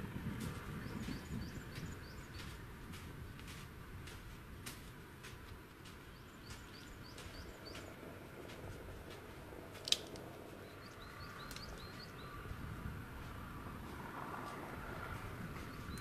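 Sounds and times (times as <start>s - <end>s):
faint outdoor background noise: 0.0s - 16.0s
small bird chirping: 0.7s - 2.6s, 6.1s - 8.0s, 10.6s - 12.4s, 15.6s - 16.0s.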